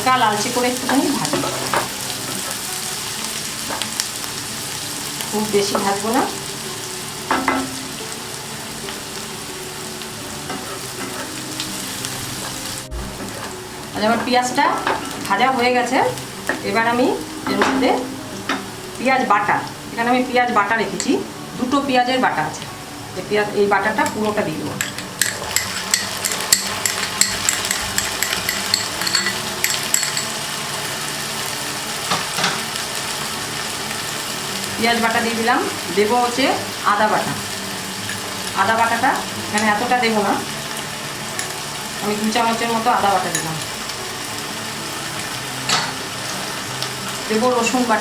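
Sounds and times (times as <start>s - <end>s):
onions sizzling in oil: 0.0s - 48.0s
spoon tapping and scraping pan: 24.0s - 30.4s.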